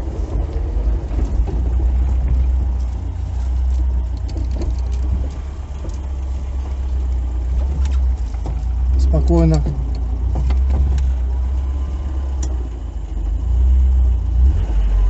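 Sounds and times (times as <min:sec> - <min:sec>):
car engine low rumble: 0:00.0 - 0:15.0.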